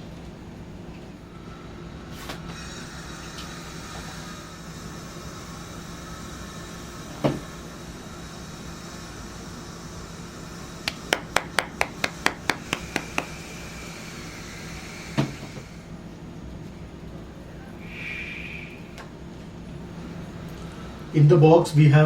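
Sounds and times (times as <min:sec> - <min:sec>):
sharp knock: 0:10.9 - 0:13.3
sharp taps on a box: 0:10.9 - 0:13.4.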